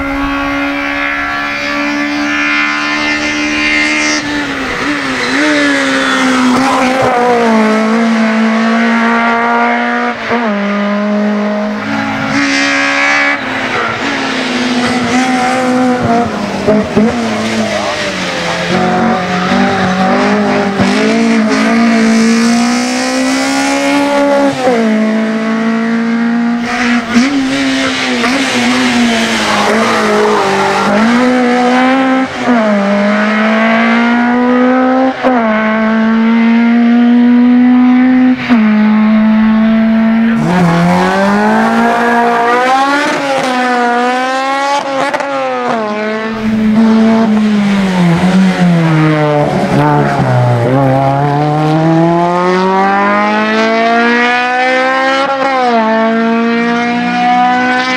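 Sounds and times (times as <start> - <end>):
racing car engine at high revs: 0.0 - 57.9.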